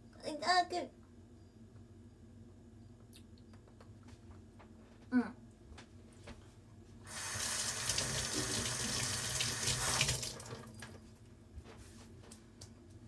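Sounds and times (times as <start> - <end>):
kitchen tap running: 7.0 - 11.0.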